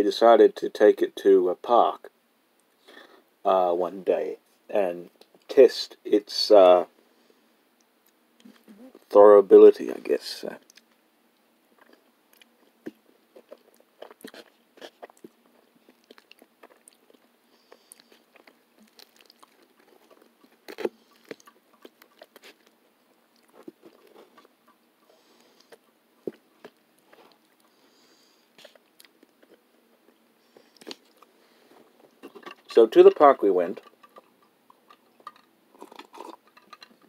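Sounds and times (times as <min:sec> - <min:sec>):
person chewing food: 0:11.8 - 0:32.7, 0:33.8 - 0:37.0.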